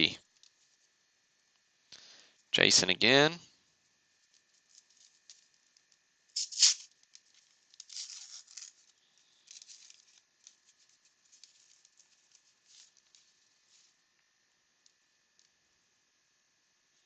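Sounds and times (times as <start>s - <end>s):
wrapper crinkling: 4.1s - 14.0s
cards sliding and ticking: 4.3s - 14.0s
card pack being torn open: 6.4s - 13.3s.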